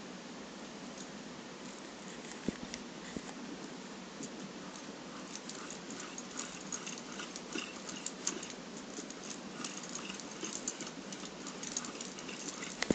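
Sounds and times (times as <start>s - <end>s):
light clicks and ticks: 4.2s - 12.9s.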